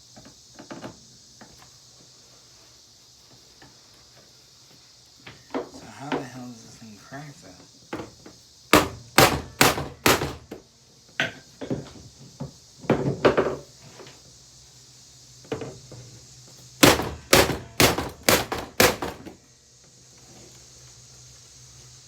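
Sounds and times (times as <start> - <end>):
heavy blows smashing vacuum cleaner: 8.0 - 10.6, 16.8 - 19.4.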